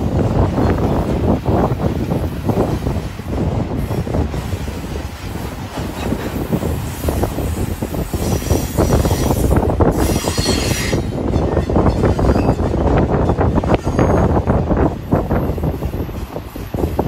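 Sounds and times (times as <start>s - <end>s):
freight train wheels rumbling: 0.0s - 17.0s
high metallic wheel squeal: 8.1s - 12.7s, 13.7s - 14.4s.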